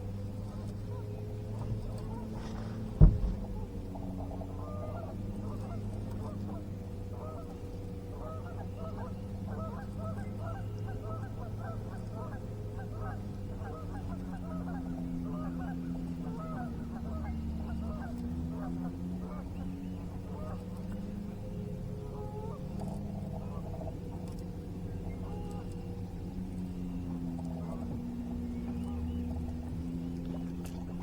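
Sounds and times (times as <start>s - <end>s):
steady low hum: 0.0s - 31.0s
geese honking: 3.6s - 7.5s, 8.1s - 20.6s.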